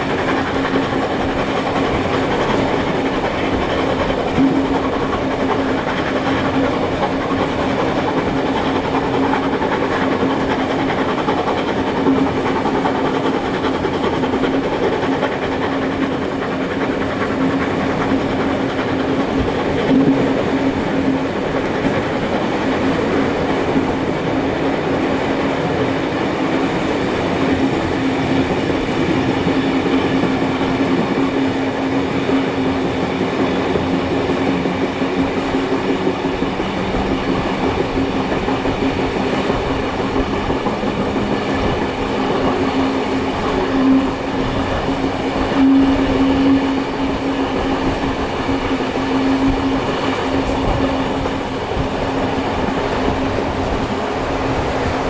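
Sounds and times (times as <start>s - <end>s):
train rumbling: 0.0s - 55.0s
wheels clicking over rail joints: 0.0s - 55.0s.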